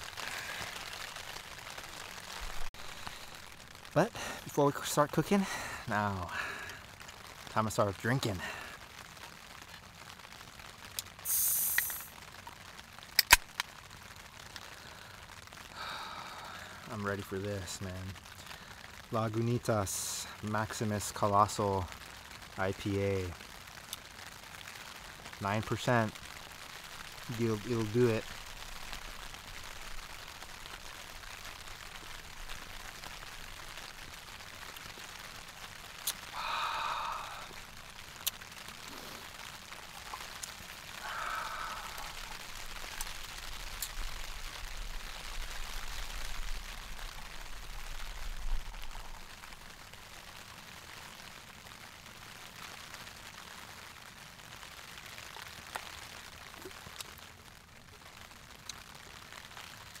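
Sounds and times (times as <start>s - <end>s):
rain pattering on tent: 0.0s - 60.0s
raindrop ticks: 0.0s - 60.0s
man sighing: 5.4s - 6.8s, 15.8s - 16.9s, 36.3s - 37.6s, 40.9s - 42.4s.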